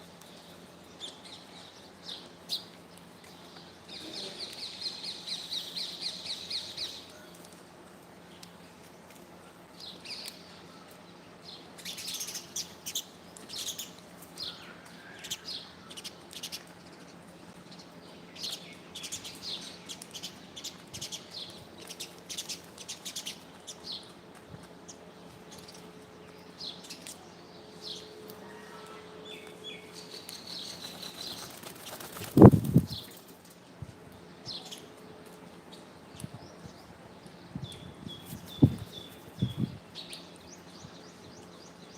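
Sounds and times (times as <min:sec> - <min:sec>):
birds chirping: 0:09.8 - 0:41.9.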